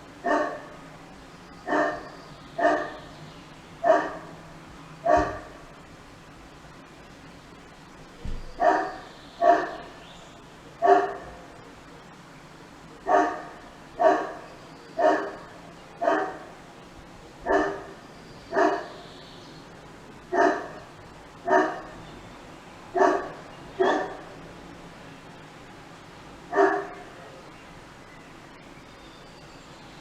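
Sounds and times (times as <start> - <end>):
dog barking: 0.2 - 0.8, 1.7 - 3.1, 3.8 - 4.4, 5.0 - 5.6, 8.6 - 9.9, 10.8 - 11.4, 13.0 - 14.4, 15.0 - 16.5, 17.4 - 19.0, 20.3 - 20.8, 21.4 - 22.0, 23.0 - 24.3, 26.5 - 27.1.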